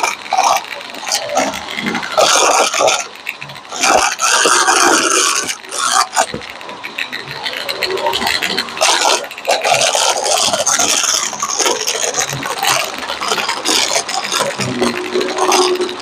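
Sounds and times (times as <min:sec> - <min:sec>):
crunchy crackling and scraping: 0:00.0 - 0:16.0
vacuum cleaner brushroll running: 0:10.2 - 0:16.0.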